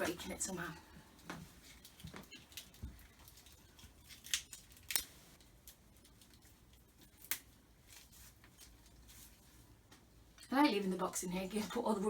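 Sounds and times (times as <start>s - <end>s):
faint room noise: 0.0s - 12.0s
packaging crinkling: 1.6s - 9.4s.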